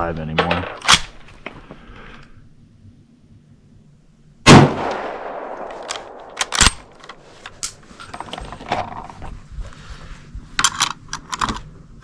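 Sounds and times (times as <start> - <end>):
rifle shot with echo: 4.5 - 7.0
rifle action metallic clacks: 4.9 - 8.9.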